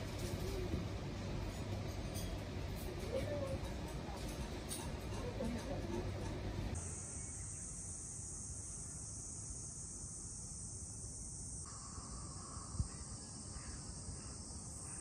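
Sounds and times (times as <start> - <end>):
high-pitched insect chorus: 6.8 - 15.0.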